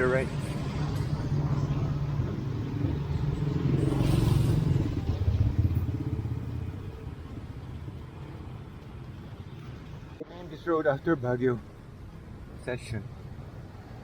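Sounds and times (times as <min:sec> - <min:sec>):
motorcycle passing by: 0:00.0 - 0:08.6.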